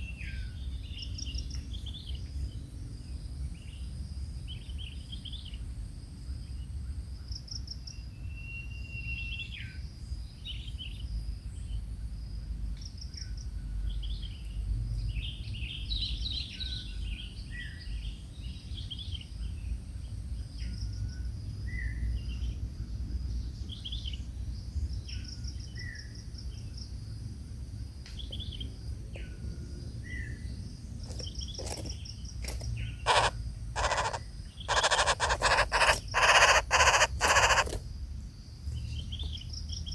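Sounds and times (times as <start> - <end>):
birds chirping: 31.0 - 37.8
insect high buzz: 33.0 - 37.8.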